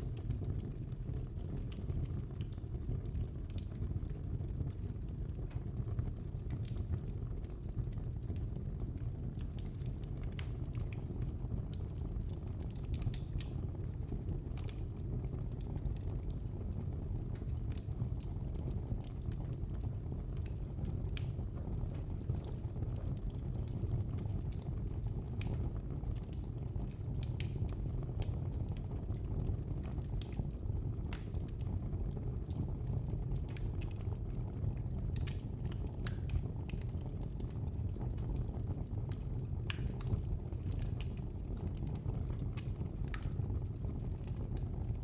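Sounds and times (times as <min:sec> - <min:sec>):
fire flames rumbling: 0:00.0 - 0:45.0
wood fire crackling and popping: 0:00.0 - 0:45.0.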